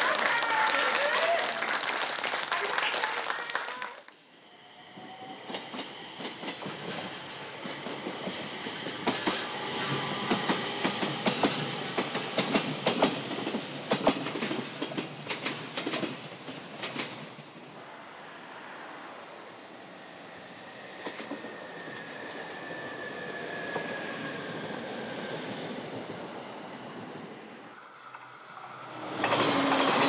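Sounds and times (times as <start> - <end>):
applause: 0.0 - 4.2
train wheels clicking over rail joints: 5.5 - 17.7, 28.0 - 30.0.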